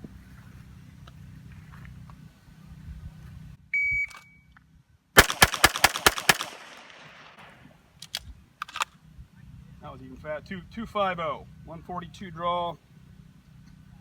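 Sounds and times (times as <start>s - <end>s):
shot timer beep: 3.8s - 4.4s
rapid pistol shots with echo: 5.2s - 7.6s.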